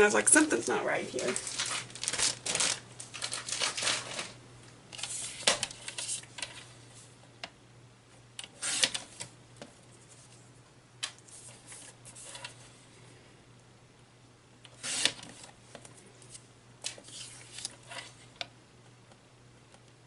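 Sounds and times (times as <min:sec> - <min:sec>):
faint low hum: 0:00.0 - 0:20.0
paper rustling and sliding: 0:01.2 - 0:07.1, 0:08.5 - 0:09.3, 0:11.3 - 0:12.8, 0:14.8 - 0:15.6, 0:16.2 - 0:18.3.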